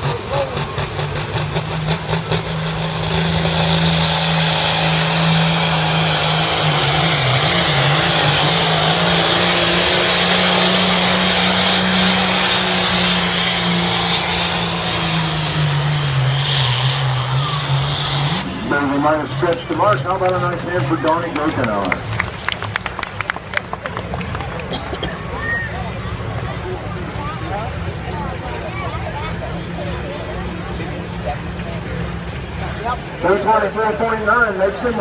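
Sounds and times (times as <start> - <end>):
diesel tractor engine roaring: 0.0 - 35.0.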